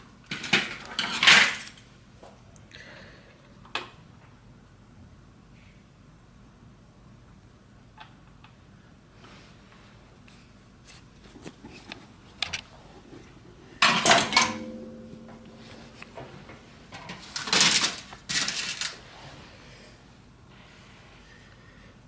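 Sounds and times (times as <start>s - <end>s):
metal tools clattering: 0.3s - 1.8s, 13.8s - 15.8s.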